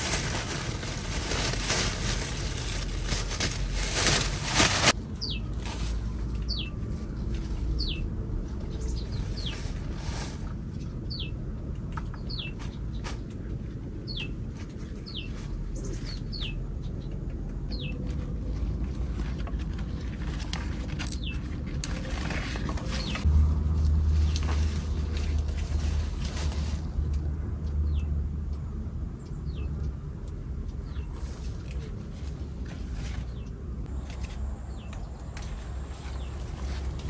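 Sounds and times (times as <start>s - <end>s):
bean pods rustling and snapping: 0.0s - 6.4s, 17.5s - 27.3s.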